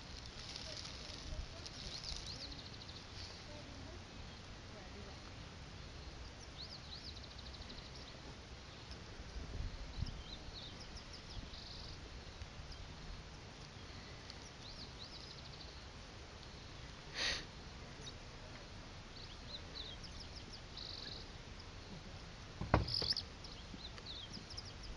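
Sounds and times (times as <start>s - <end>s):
faint steady outdoor hum: 0.0s - 24.9s
birds chirping and trilling: 0.5s - 3.1s, 19.1s - 22.0s, 22.6s - 24.9s
low thump: 22.6s - 23.2s.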